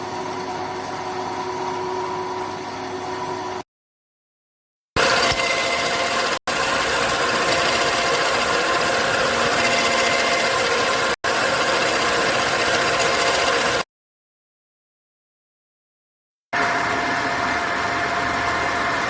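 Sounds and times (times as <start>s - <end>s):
milling machine whirring: 5.0s - 13.8s.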